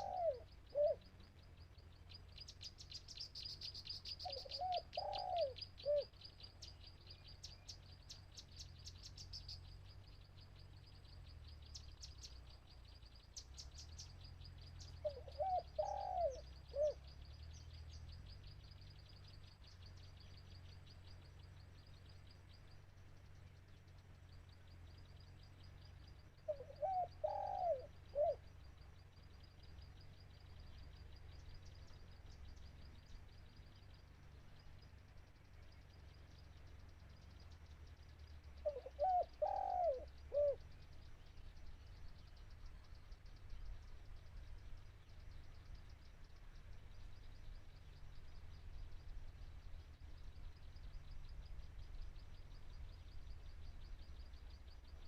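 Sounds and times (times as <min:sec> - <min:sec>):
dove cooing: 0:00.0 - 0:01.1, 0:04.2 - 0:06.1, 0:15.0 - 0:17.0, 0:26.5 - 0:28.4, 0:38.6 - 0:40.6.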